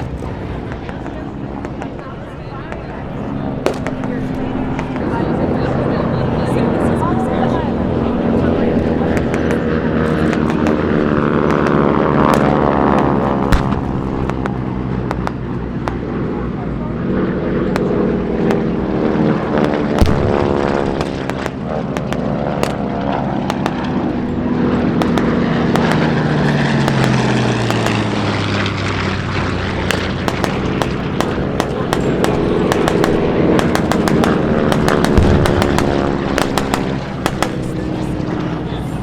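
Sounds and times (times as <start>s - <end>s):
propeller planes passing low: 0.0s - 39.0s
sharp pops: 3.5s - 5.2s, 8.8s - 16.1s, 19.6s - 24.0s, 24.9s - 29.1s, 29.8s - 38.5s.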